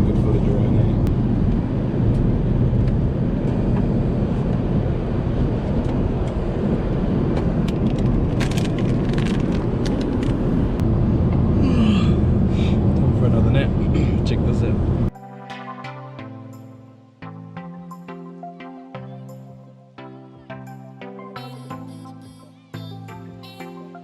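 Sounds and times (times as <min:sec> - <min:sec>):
airliner cabin rumble: 0:00.0 - 0:15.1.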